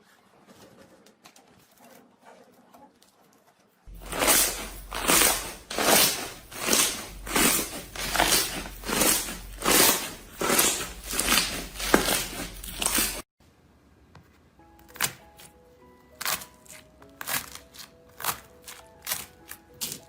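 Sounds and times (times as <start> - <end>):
slime squishing: 3.9 - 13.2.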